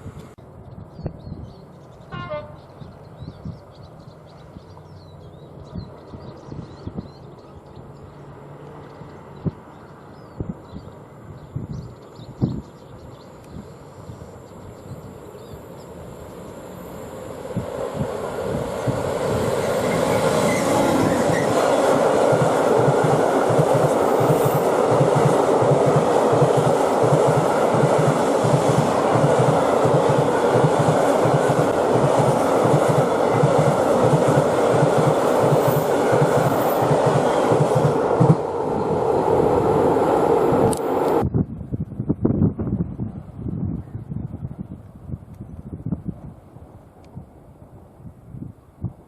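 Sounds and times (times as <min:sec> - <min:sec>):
diesel locomotive passing: 0:01.6 - 0:12.0, 0:13.0 - 0:41.3
train wheels clickety-clack: 0:18.8 - 0:38.5.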